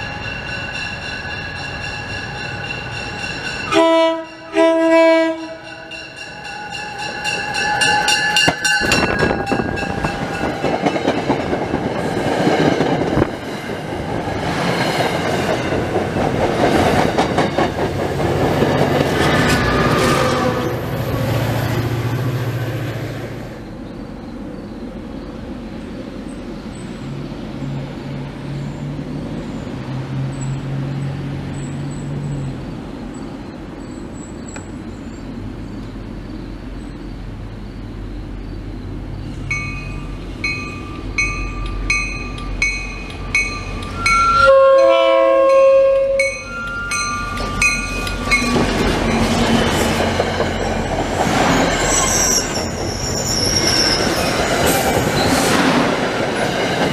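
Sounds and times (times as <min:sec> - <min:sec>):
warning bell dinging: 0:00.0 - 0:11.1, 0:39.5 - 0:49.4
train rumbling: 0:00.0 - 0:56.9
train horn blast: 0:03.7 - 0:06.0, 0:44.0 - 0:46.4.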